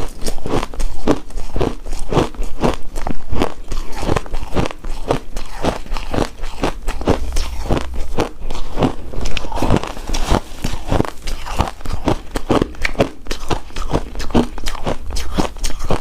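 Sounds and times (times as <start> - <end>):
chewing crunchy ice: 0.0 - 16.0.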